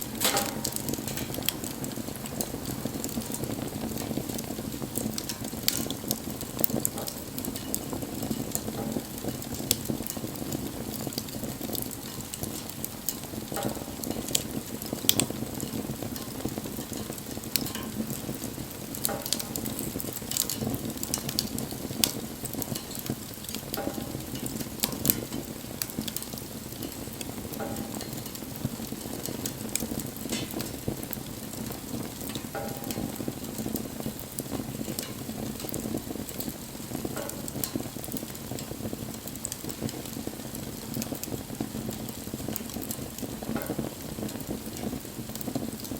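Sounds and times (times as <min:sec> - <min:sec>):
fire crackling and popping: 0:00.0 - 0:45.9
wood fire rushing: 0:00.0 - 0:45.9.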